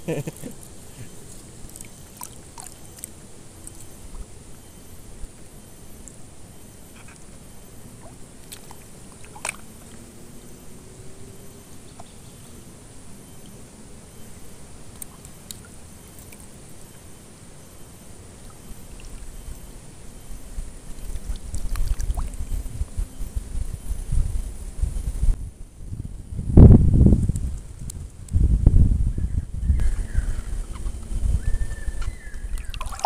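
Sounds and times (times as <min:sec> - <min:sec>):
wind buffeting microphone: 0:21.0 - 0:33.0.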